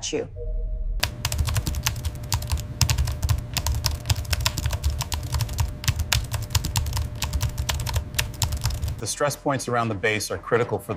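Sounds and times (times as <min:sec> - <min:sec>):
fast typing on keyboard: 0:01.0 - 0:09.0.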